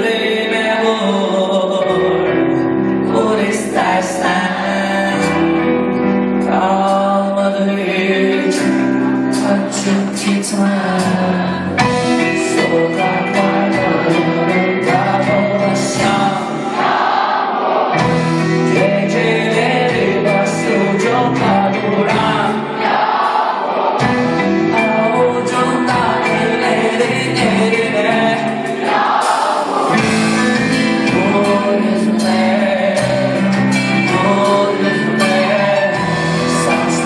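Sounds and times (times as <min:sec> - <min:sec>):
live band with singing: 0:00.0 - 0:37.0
drum and cymbal strikes: 0:24.0 - 0:37.0.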